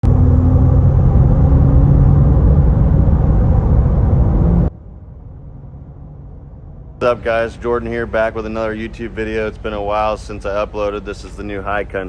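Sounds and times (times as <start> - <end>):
truck engine running hard: 0.0 - 4.7.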